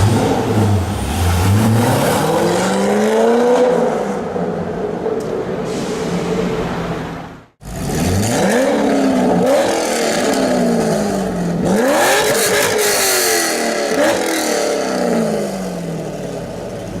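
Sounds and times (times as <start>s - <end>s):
car engine revving: 0.0s - 4.4s, 7.6s - 16.4s.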